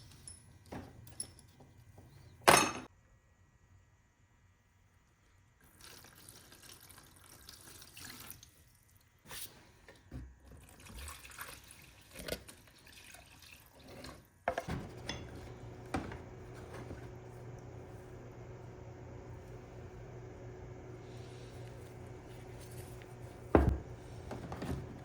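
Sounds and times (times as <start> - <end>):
steady low hum: 14.6 - 25.0.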